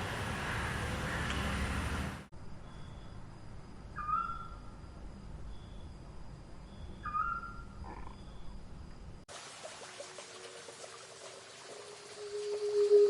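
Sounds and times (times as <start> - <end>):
whistled animal calls: 4.0 - 4.6, 6.8 - 8.5
running water: 9.3 - 13.0
high insect drone: 11.4 - 13.0.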